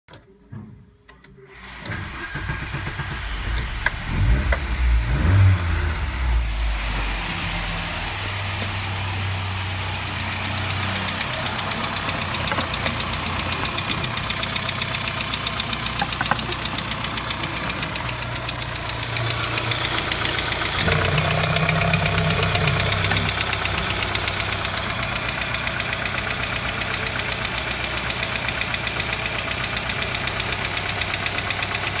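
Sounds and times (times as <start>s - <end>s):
car engine idling and revving: 1.6s - 32.0s.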